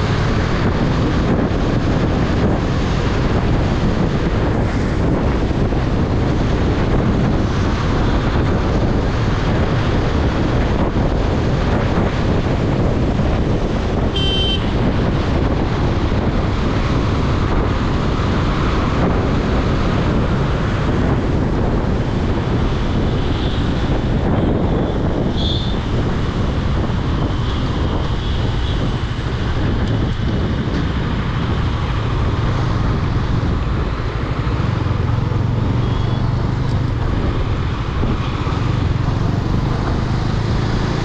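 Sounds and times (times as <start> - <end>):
road noise: 0.0 - 41.0
wind rushing over microphone: 0.0 - 41.0
motorcycle engine: 31.4 - 41.0.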